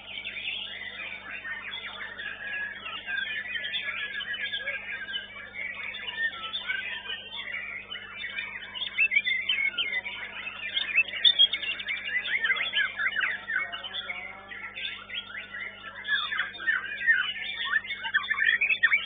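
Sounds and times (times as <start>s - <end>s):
bird singing chirps and whistles: 0.0s - 19.0s.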